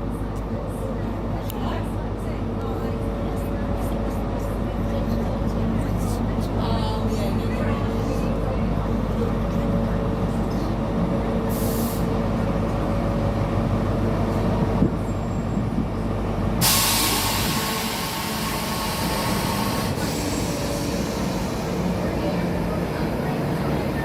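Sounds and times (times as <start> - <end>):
train rumbling: 0.0 - 24.0
loud hiss: 16.6 - 21.9.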